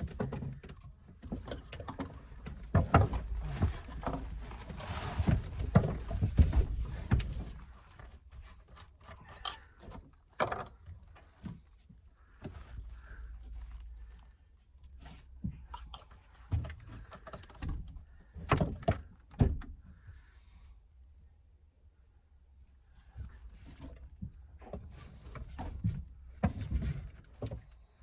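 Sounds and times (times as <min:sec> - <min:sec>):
tools knocking and tapping: 0:08.8 - 0:09.6.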